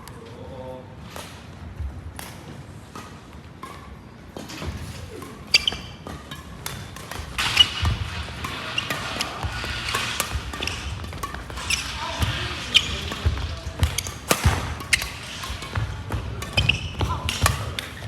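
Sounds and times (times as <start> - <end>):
racket hitting shuttlecock: 2.2 - 18.0
shoes squeaking on court: 4.0 - 18.0.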